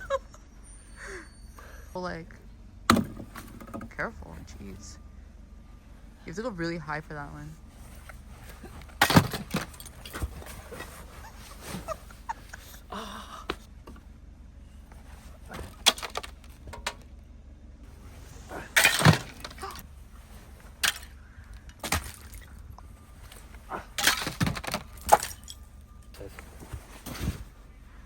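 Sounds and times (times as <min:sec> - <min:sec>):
icicles cracking and shattering: 0:08.6 - 0:10.3, 0:15.7 - 0:17.1, 0:18.5 - 0:19.8, 0:20.7 - 0:26.1.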